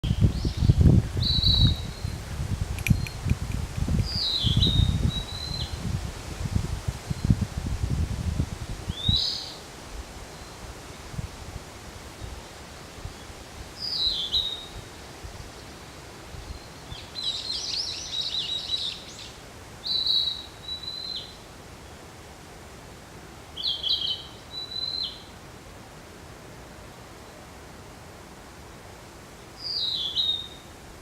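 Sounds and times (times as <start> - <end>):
bird singing whistled notes: 0.0 - 2.2, 2.8 - 3.2, 4.0 - 5.8, 8.9 - 9.6, 13.8 - 14.8, 15.8 - 21.4, 23.6 - 25.3, 29.6 - 30.7.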